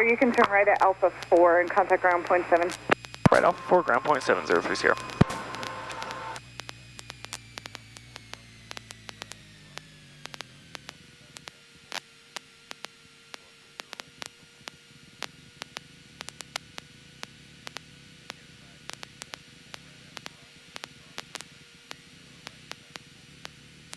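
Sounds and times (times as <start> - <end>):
intercom hiss: 0.0 - 6.4
crackling clicks: 0.0 - 23.9
thin electrical whine: 0.0 - 23.9.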